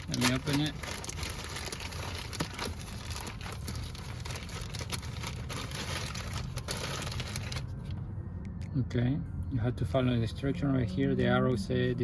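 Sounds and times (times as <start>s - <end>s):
plastic packaging crinkling: 0.0s - 7.9s
low steady rumble: 0.0s - 12.0s.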